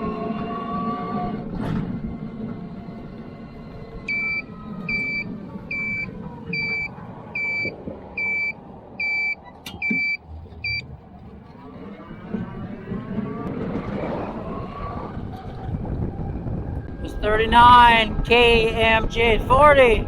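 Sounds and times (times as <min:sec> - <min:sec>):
electronic beeper beeping: 0:04.1 - 0:10.8.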